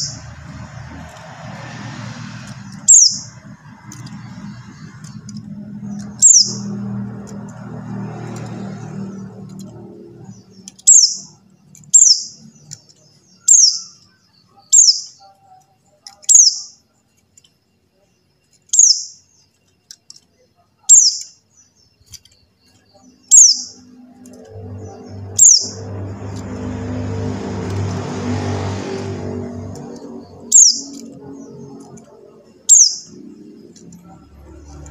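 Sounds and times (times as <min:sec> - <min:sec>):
low droning background: 0:22.7 - 0:34.9.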